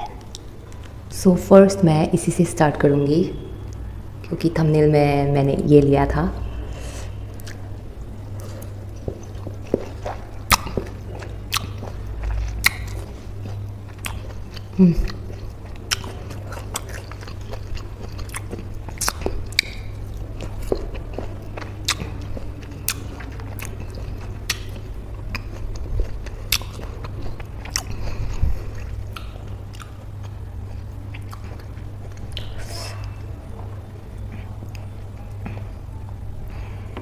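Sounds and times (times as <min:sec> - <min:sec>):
low steady hum: 0:00.0 - 0:37.0
person chewing orange segment: 0:07.3 - 0:35.8.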